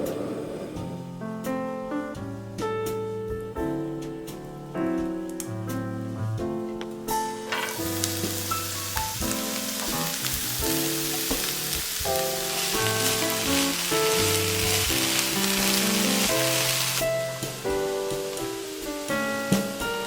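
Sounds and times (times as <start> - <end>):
background piano music: 0.0 - 20.0
vegetables sizzling in a pan: 7.2 - 20.0.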